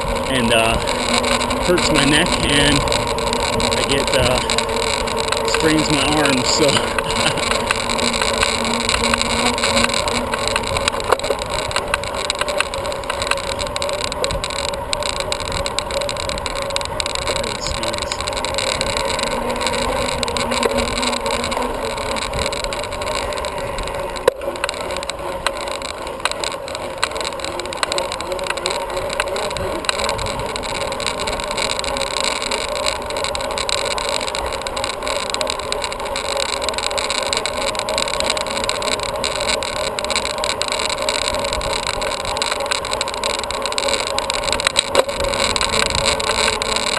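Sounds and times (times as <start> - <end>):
wind on camera microphone: 29.5 - 31.0, 45.0 - 46.9.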